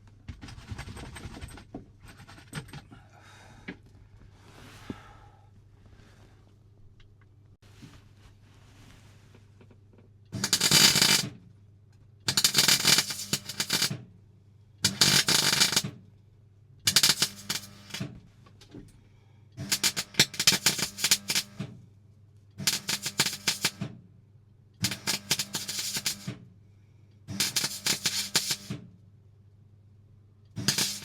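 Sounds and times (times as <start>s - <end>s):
welding arc crackling: 10.4s - 11.3s, 12.3s - 13.9s, 14.8s - 15.9s, 16.9s - 18.0s, 19.6s - 21.6s, 22.6s - 23.8s, 24.8s - 26.3s, 27.4s - 28.7s, 30.6s - 31.0s
faint steady hum: 18.2s - 19.6s.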